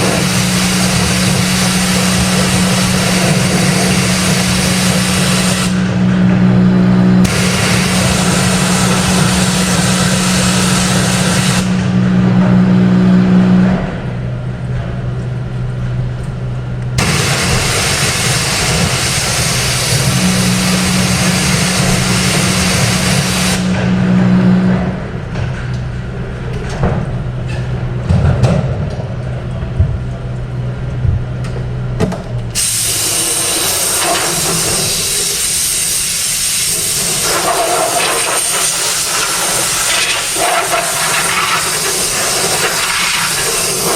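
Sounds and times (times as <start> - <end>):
pressure washer spraying: 0.0 - 6.0, 7.2 - 11.9, 17.0 - 23.8, 32.6 - 43.9
pressure washer motor humming: 0.0 - 13.7, 16.9 - 25.3, 32.5 - 43.9.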